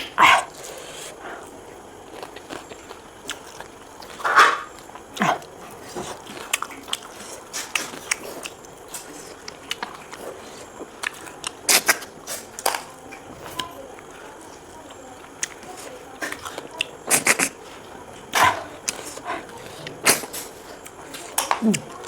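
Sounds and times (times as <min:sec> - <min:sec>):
wet chewing and smacking: 0:00.0 - 0:13.7, 0:14.5 - 0:22.0.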